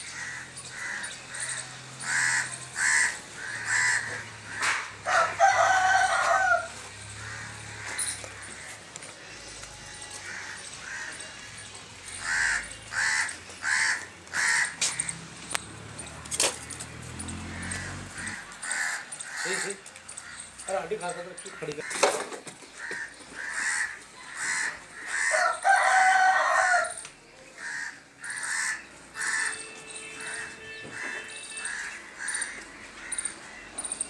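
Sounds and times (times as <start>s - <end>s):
birds calling: 0.0s - 34.0s
rooster crowing: 2.2s - 7.5s, 24.5s - 27.1s.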